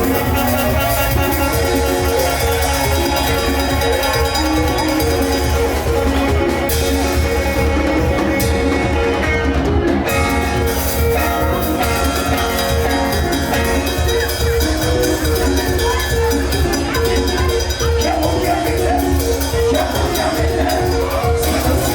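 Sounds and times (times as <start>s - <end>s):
live band music with heavy bass: 0.0s - 21.9s.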